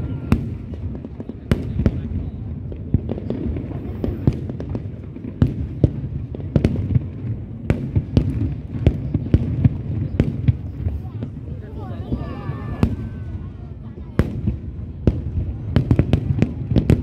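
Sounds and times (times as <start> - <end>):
sharp firework bangs: 0.0 - 17.0.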